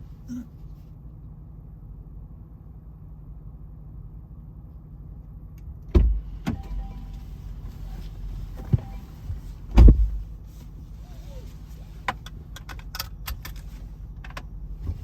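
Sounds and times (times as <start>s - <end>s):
car engine idling: 6.1s - 15.0s
car door clunking open: 8.0s - 10.4s.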